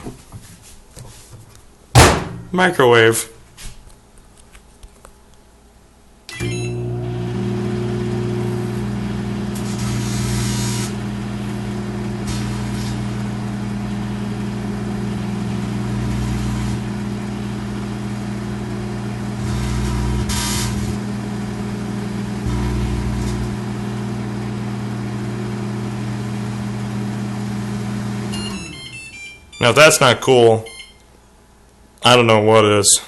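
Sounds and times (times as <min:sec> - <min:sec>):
microwave oven humming: 0:06.2 - 0:29.7
grape sparking with hissing crackle: 0:09.6 - 0:11.0, 0:12.2 - 0:13.2, 0:19.4 - 0:21.0.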